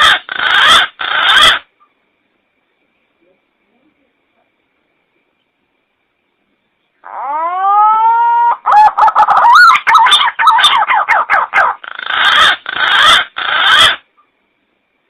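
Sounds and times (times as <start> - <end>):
recorded pigeon call whistles: 7.1 - 14.0.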